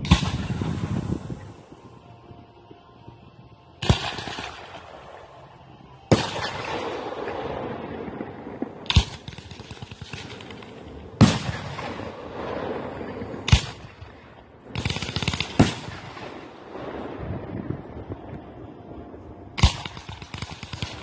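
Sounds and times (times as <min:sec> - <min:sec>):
crackling firework pops: 0:00.0 - 0:01.4, 0:13.3 - 0:14.1, 0:19.6 - 0:21.0.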